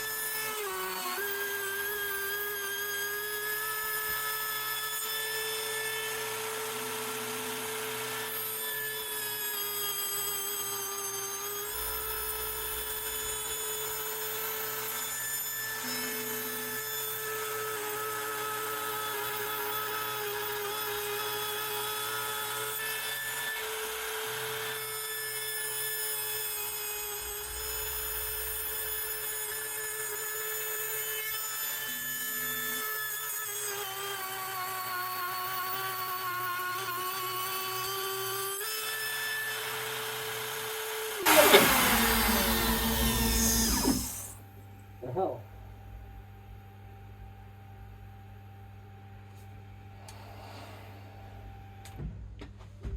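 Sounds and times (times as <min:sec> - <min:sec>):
router spindle whine: 0:00.0 - 0:44.6
cutter rumbling in wood: 0:39.4 - 0:44.4.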